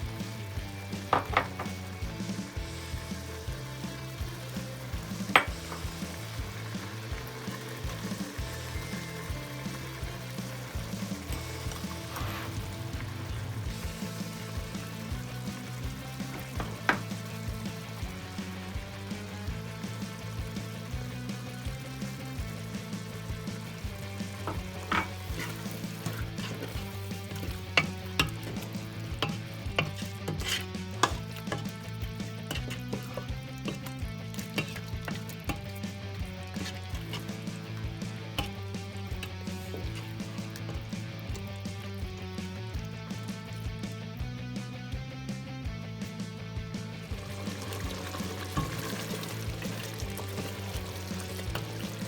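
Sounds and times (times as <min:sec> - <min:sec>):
food sizzling in a pan: 0:00.0 - 0:42.6, 0:47.0 - 0:52.0
utensil clinking against pan: 0:24.4 - 0:31.8, 0:32.4 - 0:35.8, 0:36.5 - 0:37.6, 0:38.4 - 0:40.8, 0:48.4 - 0:50.7.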